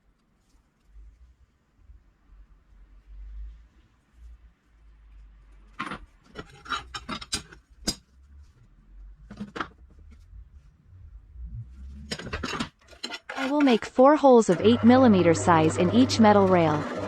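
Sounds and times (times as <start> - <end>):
metal parts clinking and knocking: 5.7 - 8.1, 12.0 - 13.9.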